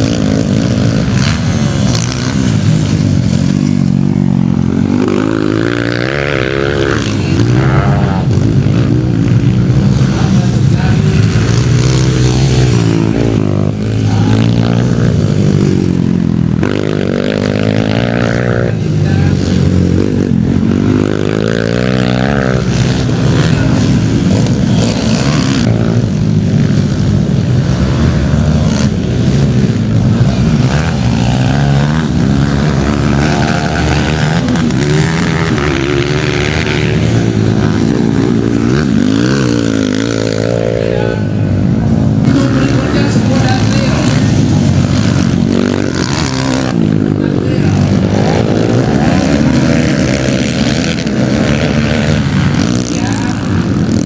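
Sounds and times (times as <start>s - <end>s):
motocross bike engines revving: 0.0s - 54.0s.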